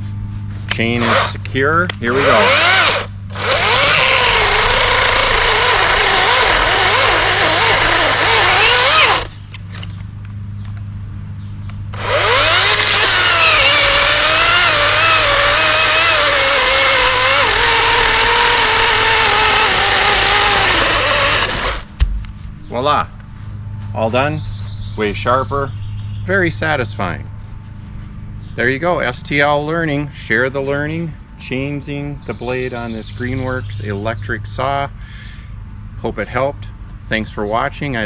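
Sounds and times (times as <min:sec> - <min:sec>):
electric chainsaw cutting wood: 0:01.0 - 0:01.4, 0:02.1 - 0:09.4, 0:12.0 - 0:22.0.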